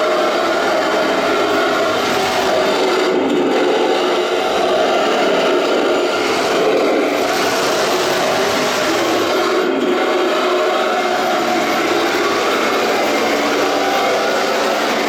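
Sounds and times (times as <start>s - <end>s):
toy tank motors and tracks rattling: 0.0s - 15.0s.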